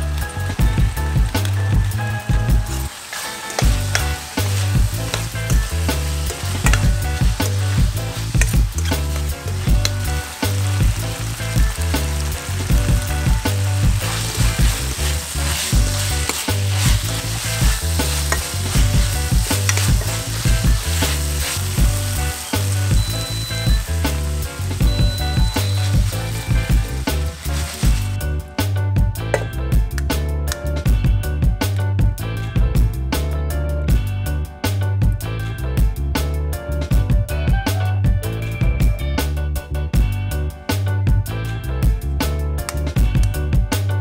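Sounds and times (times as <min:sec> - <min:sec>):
food sizzling in a pan: 0:00.0 - 0:28.2
low background music: 0:00.0 - 0:44.0
metal spoon scraping a pan: 0:14.1 - 0:21.8.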